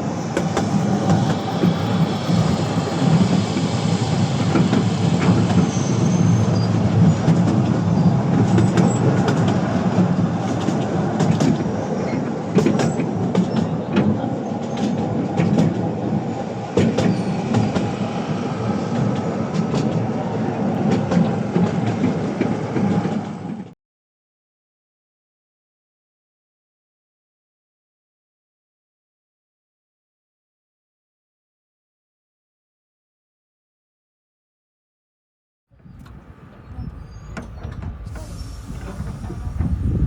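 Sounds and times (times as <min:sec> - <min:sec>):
train rumbling along track: 0:00.0 - 0:23.8, 0:35.8 - 0:40.0
wheels clicking on rails: 0:35.8 - 0:40.0.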